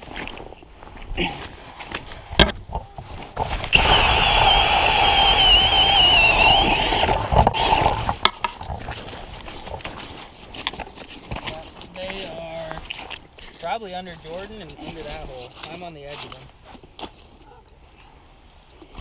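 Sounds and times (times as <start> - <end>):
power ice auger drilling: 3.6 - 8.2.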